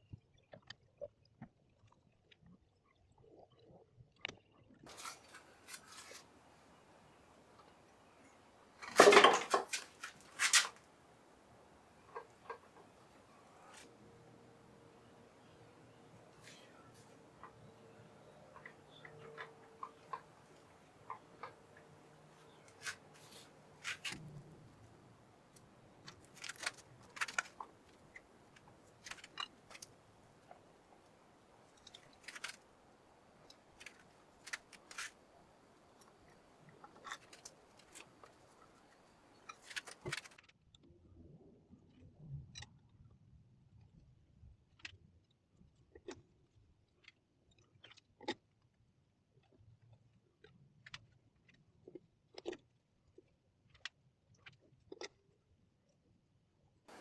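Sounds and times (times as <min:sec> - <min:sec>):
faint clicks and light knocks: 0:04.9 - 0:40.4
small metal parts clicking: 0:25.5 - 0:31.0, 0:31.6 - 0:32.6, 0:33.2 - 0:35.2, 0:36.0 - 0:40.4.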